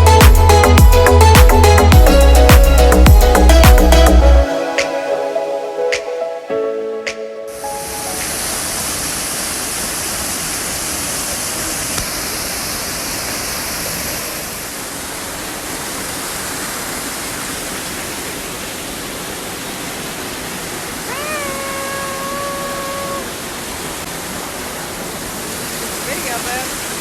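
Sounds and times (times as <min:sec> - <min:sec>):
waterfall roaring: 0:07.5 - 0:27.0.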